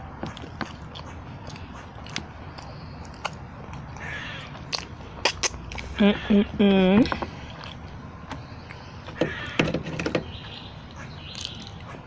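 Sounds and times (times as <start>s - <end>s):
person chewing food: 0.0s - 6.0s, 7.1s - 8.0s, 10.9s - 12.0s
low background hum: 0.0s - 12.0s
wet mouth clicks: 0.3s - 4.0s, 4.6s - 6.0s, 11.3s - 11.9s.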